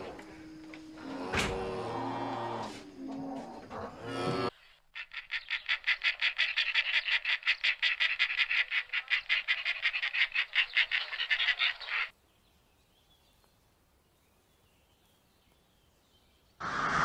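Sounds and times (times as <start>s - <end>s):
vultures chattering cackle: 5.0s - 12.1s.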